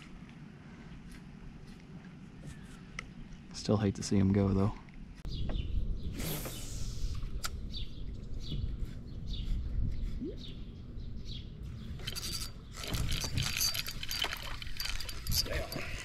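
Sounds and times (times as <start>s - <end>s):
birds chirping: 2.4s - 16.0s
steady low rumble: 4.9s - 16.0s.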